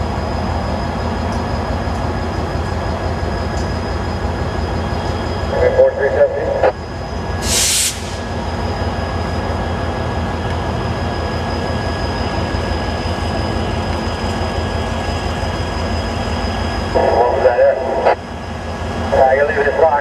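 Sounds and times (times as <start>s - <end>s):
train rumbling: 0.0s - 20.0s
radio squelch hiss: 17.0s - 18.2s.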